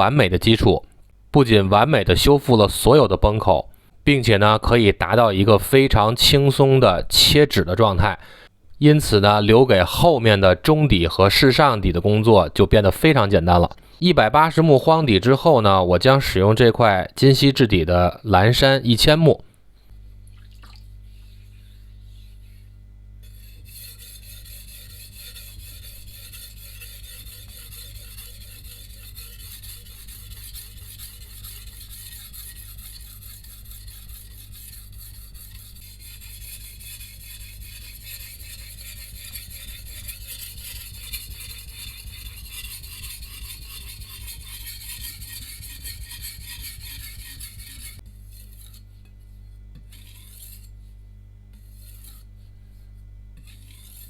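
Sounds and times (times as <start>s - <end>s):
knife scraping on whetstone: 21.2s - 54.0s.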